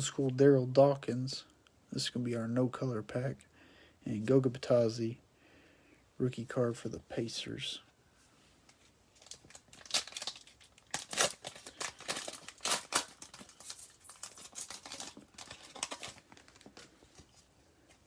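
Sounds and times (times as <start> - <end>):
wrapper being torn and crinkled: 9.1 - 16.8.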